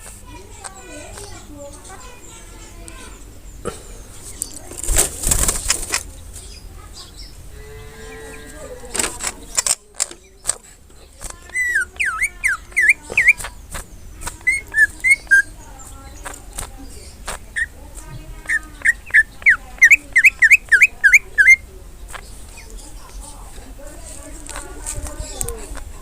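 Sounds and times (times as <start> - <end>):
sharp clicks: 9.0 - 15.4, 16.2 - 17.4
bird whistling song: 11.4 - 16.3, 16.9 - 23.0.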